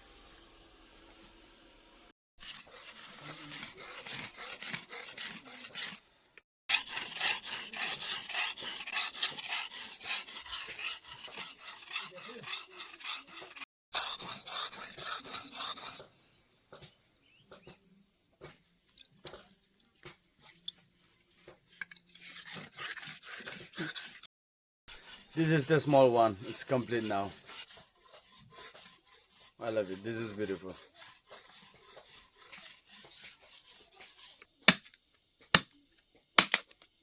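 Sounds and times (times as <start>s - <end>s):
machete scraping strokes: 2.4s - 6.0s, 6.7s - 16.1s, 21.7s - 24.3s, 24.9s - 34.8s.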